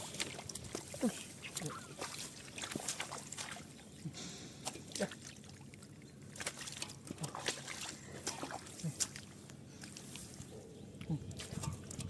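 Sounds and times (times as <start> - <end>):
clicks and squelches in mud: 0.0 - 12.0
muddy water sloshing and splashing: 0.0 - 12.0.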